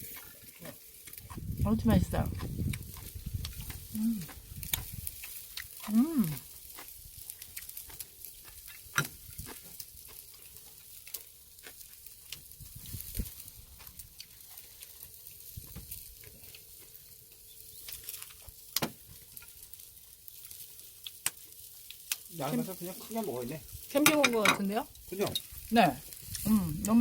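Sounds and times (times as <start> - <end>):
meat sizzling over charcoal: 0.0 - 27.0
sharp clicks and pops: 7.4 - 9.6.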